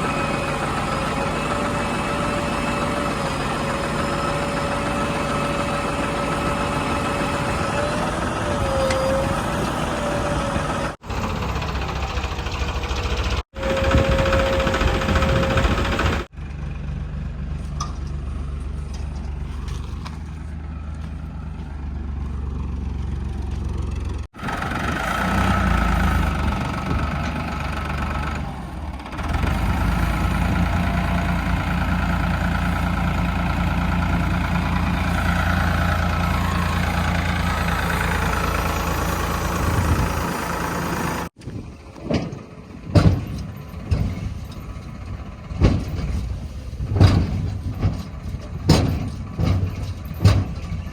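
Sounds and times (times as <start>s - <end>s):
heavy diesel engines running: 0.0s - 50.9s.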